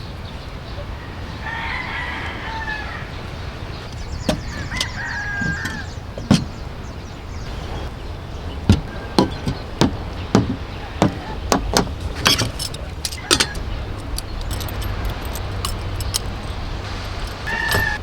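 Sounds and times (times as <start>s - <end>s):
surf rumble: 0.0s - 18.0s
rooster crowing: 0.9s - 3.7s, 4.4s - 6.0s, 17.0s - 18.0s.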